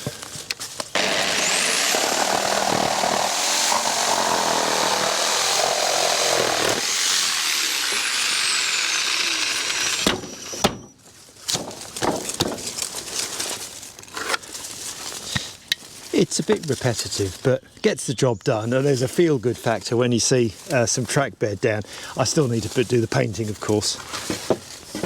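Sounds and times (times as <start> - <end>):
electric power saw cutting timber: 0.9 - 10.9
sharp knocks: 11.5 - 12.7.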